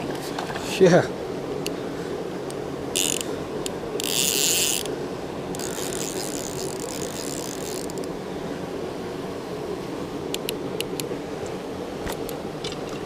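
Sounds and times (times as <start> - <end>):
fishing reel buzzing: 2.9 - 3.3, 4.0 - 4.9, 5.5 - 8.1.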